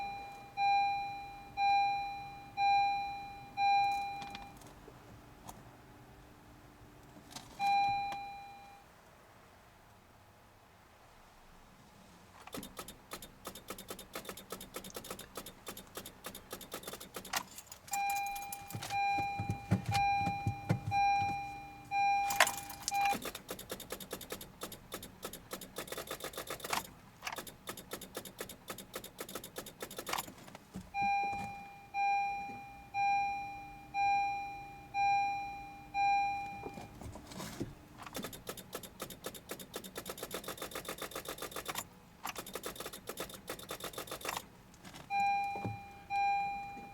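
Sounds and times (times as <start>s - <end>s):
car warning chime beeping: 0.0s - 4.6s, 7.6s - 8.9s, 12.6s - 30.2s, 30.9s - 37.1s, 42.4s - 44.4s, 45.1s - 46.9s
rapid electrical clicking: 12.5s - 17.6s, 22.8s - 30.3s, 38.0s - 44.5s.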